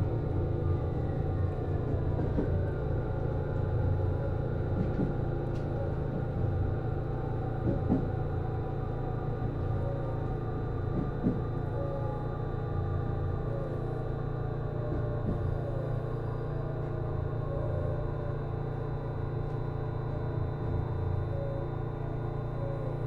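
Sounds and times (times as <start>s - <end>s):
train engine drone: 0.0s - 23.0s.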